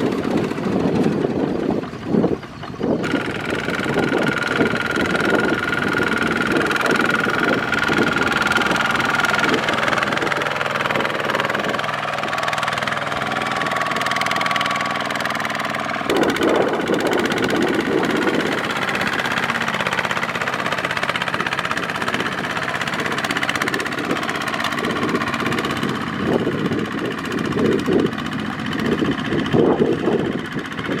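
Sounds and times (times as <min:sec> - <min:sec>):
diesel tractor engine running: 0:00.0 - 0:31.0.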